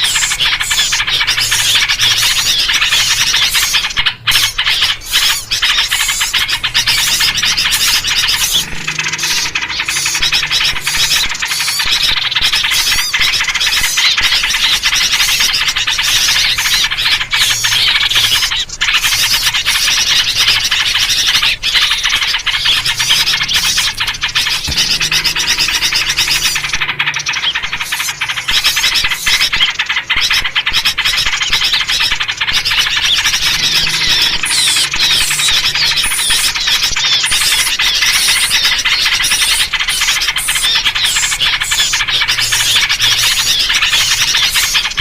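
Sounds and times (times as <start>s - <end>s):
bulbul calls: 0.0s - 45.0s
small birds chattering and chirping: 0.0s - 45.0s.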